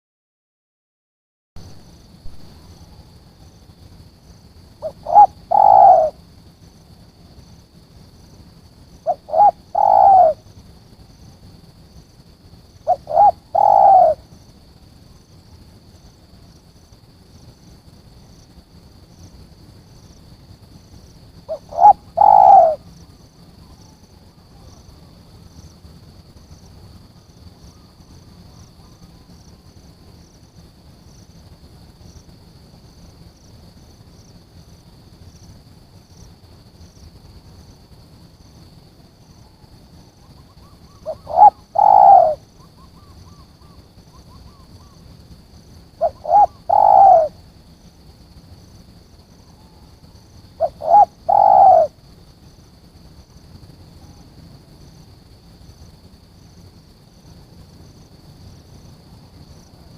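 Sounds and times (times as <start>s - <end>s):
dove cooing: 4.8s - 6.2s, 9.0s - 10.4s, 12.8s - 14.3s, 21.5s - 23.0s, 40.2s - 45.0s, 46.0s - 47.4s, 49.5s - 52.0s.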